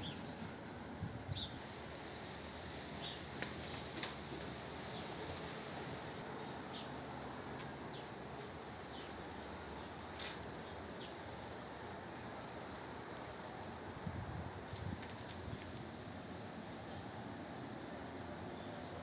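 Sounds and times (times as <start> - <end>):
background hiss: 0.0 - 19.0
birds chirping: 2.6 - 6.9.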